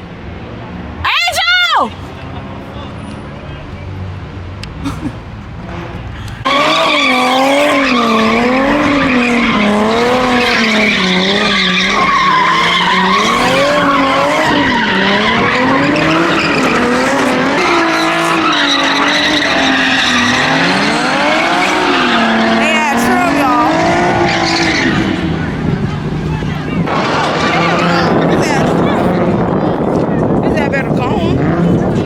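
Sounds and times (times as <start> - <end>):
car engine at high revs: 2.0 - 32.0
tyre squeal: 6.4 - 22.9.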